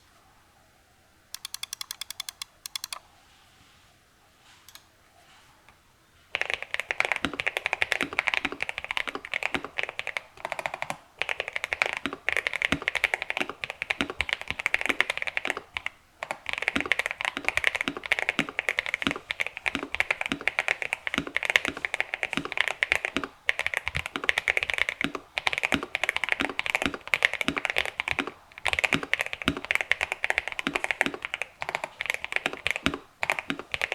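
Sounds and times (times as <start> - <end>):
mechanical keyboard typing: 1.4 - 3.0, 6.3 - 33.9.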